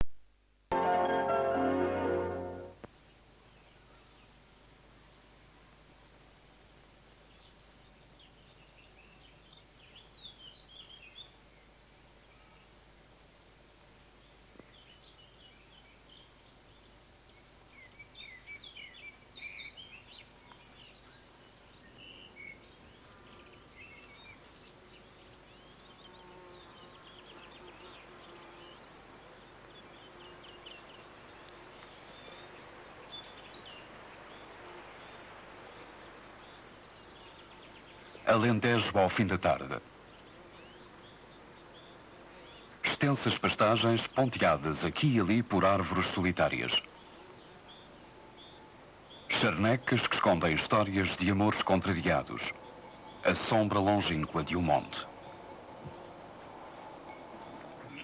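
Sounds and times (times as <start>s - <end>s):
soft steady hiss: 0.0s - 58.0s
insect chirping: 9.8s - 38.2s, 54.2s - 58.0s
bird chirps: 46.7s - 58.0s.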